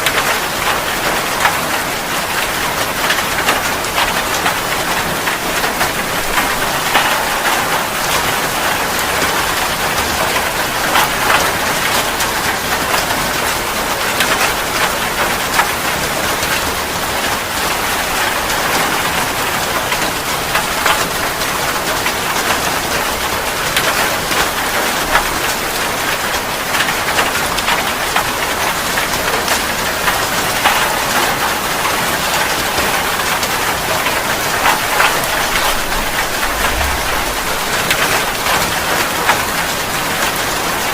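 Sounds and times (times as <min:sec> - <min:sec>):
steady rain hiss: 0:00.0 - 0:40.9
rain drop ticks: 0:02.3 - 0:40.9.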